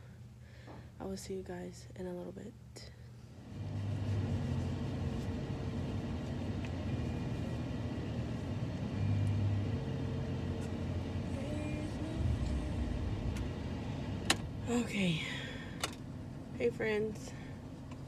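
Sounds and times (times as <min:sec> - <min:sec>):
car engine idling: 0:06.0 - 0:18.0.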